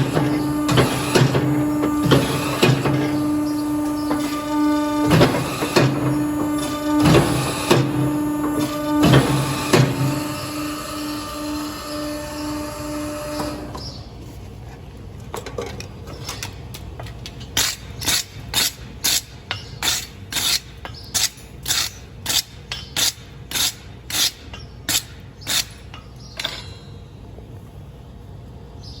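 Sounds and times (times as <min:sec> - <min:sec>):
rhythmic rasping strokes: 0:00.0 - 0:13.7.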